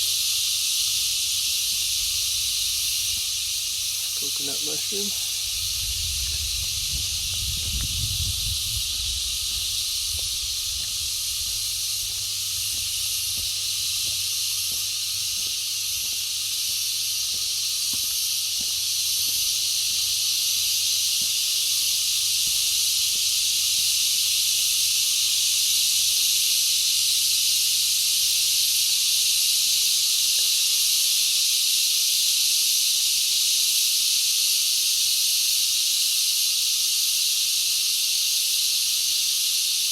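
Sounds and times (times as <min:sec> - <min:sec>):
cicadas chorus: 0:00.0 - 0:39.9
wind rumble on microphone: 0:05.3 - 0:14.2.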